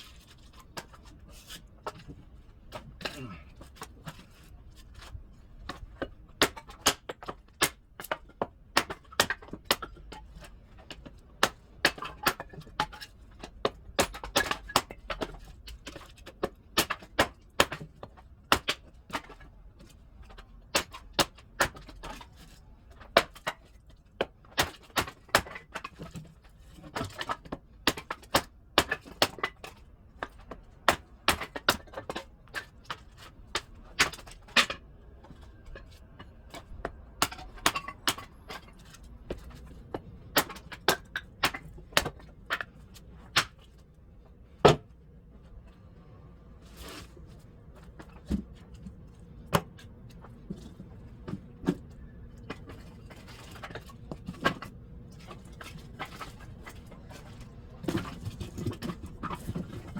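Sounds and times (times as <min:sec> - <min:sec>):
firewood being split: 0:05.7 - 0:10.1, 0:10.8 - 0:19.4, 0:20.2 - 0:39.6, 0:40.3 - 0:43.6.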